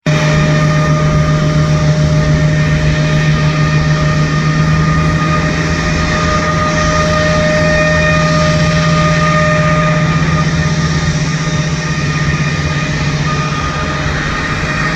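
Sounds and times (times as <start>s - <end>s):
jet engines whining: 0.0s - 14.9s.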